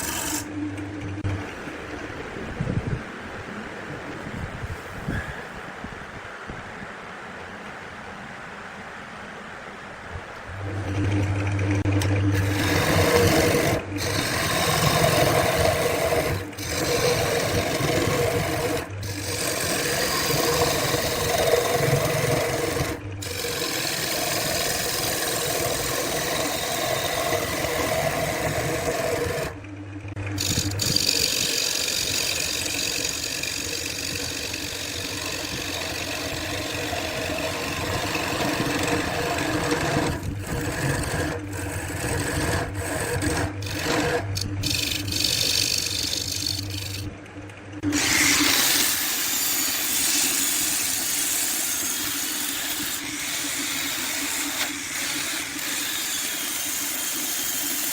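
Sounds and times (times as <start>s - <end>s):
wood lathe workpiece rasping: 0.0s - 0.5s, 11.8s - 29.6s, 30.3s - 47.1s, 47.8s - 57.9s
low motor hum: 0.0s - 5.4s, 9.9s - 56.9s.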